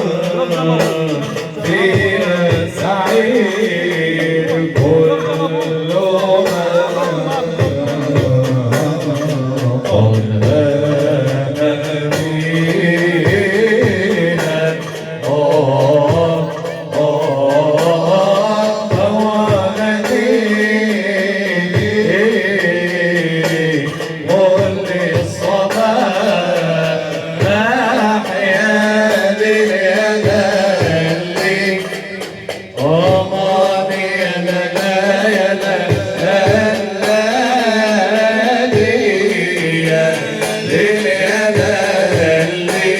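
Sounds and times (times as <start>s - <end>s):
person singing ornamented melody: 10.9s - 34.9s.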